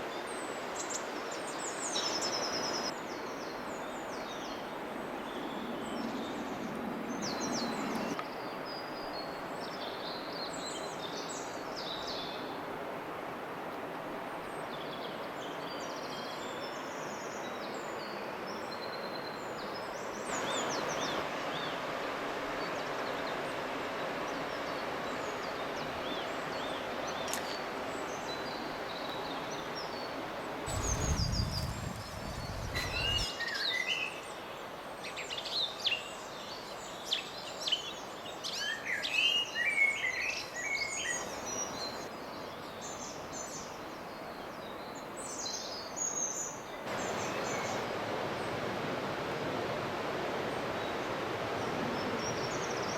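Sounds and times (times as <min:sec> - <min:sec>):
outdoor background hiss: 0:00.0 - 0:52.9
small birds chirping: 0:24.3 - 0:47.9.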